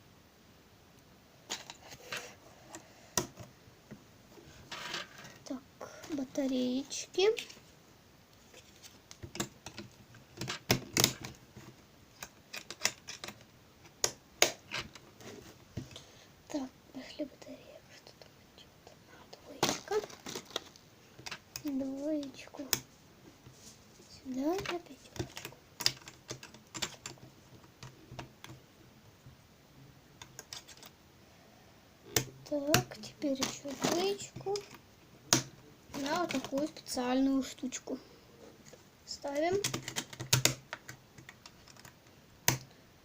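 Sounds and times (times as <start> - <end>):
plastic parts clicking into place: 12.2 - 15.0, 24.6 - 28.6, 39.5 - 42.7.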